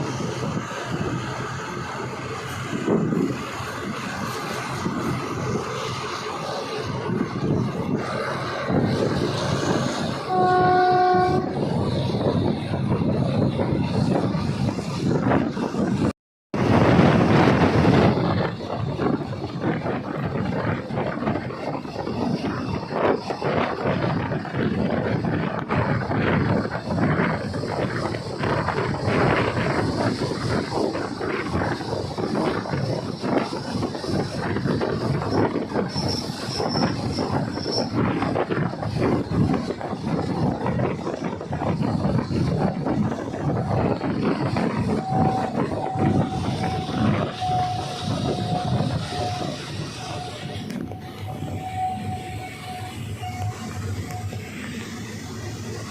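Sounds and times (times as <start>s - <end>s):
train rumbling and rattling: 0.0s - 55.9s
wind noise: 0.0s - 55.9s
train horn: 10.2s - 11.7s, 44.9s - 54.3s.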